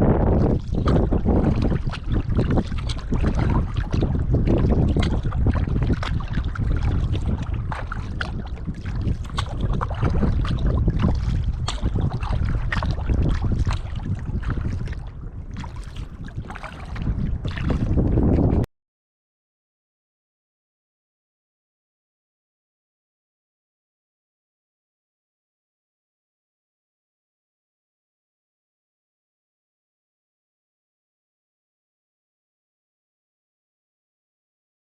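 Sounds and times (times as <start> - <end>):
wind rumble on microphone: 0.0 - 18.7
water splashing off paddle blades: 0.6 - 18.6.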